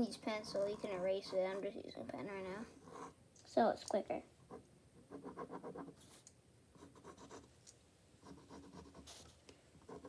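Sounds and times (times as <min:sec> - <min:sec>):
pen scratching on paper: 0:00.4 - 0:01.8, 0:02.5 - 0:03.2, 0:04.5 - 0:06.2, 0:06.8 - 0:07.5, 0:08.2 - 0:10.0.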